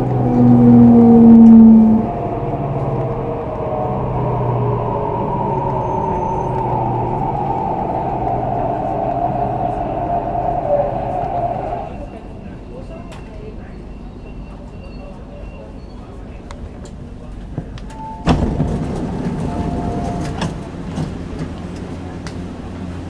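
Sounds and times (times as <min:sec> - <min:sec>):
loud low hum: 0:00.0 - 0:12.2
train motor whine: 0:00.0 - 0:12.2
rail running noise: 0:00.0 - 0:23.0.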